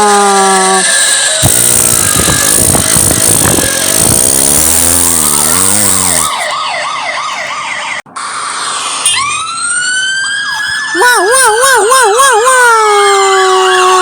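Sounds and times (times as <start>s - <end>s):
wavering pitched drone: 0.5s - 6.6s
warbling police siren: 0.5s - 14.0s.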